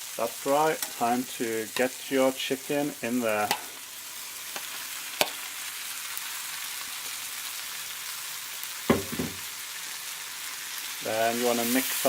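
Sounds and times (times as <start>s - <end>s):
food sizzling in frying pan: 0.0s - 12.0s
sharp knock: 8.9s - 9.4s.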